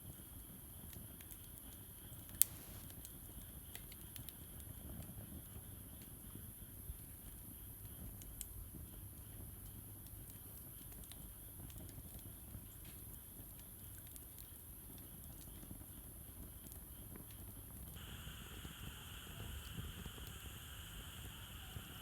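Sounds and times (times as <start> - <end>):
wood fire crackling: 0.0 - 22.0
sharp fire pops: 1.7 - 4.5, 17.9 - 22.0.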